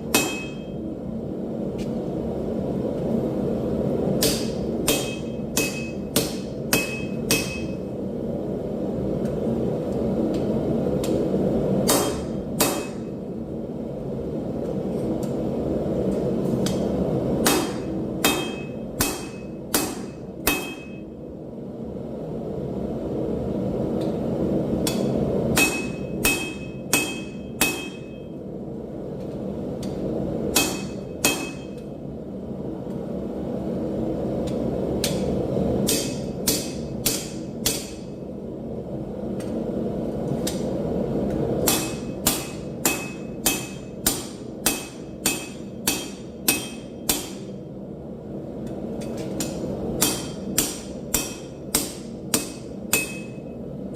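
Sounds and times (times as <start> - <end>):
hammer striking steel on anvil: 0.0 - 0.8, 4.2 - 7.9, 11.8 - 13.2, 16.6 - 21.2, 24.8 - 28.4, 29.8 - 31.9, 35.0 - 38.2, 41.6 - 47.6, 49.0 - 53.6.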